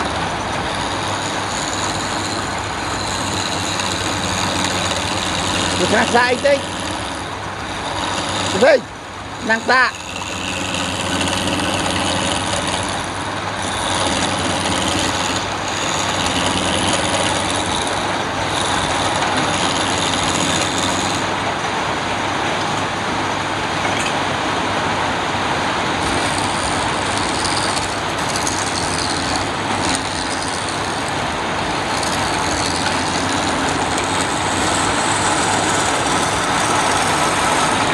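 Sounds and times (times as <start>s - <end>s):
wood lathe motor hum: 0.0s - 37.9s
rough hiss of wood lathe: 0.7s - 21.4s, 26.0s - 37.9s.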